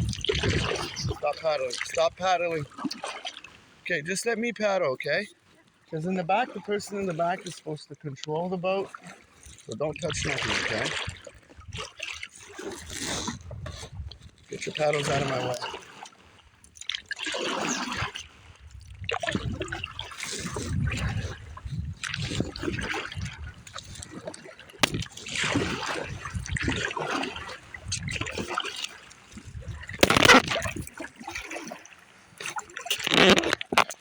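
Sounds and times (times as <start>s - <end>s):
kayak paddle strokes in water: 0.0s - 4.0s, 5.3s - 34.0s
water splashing and dripping: 22.0s - 34.0s.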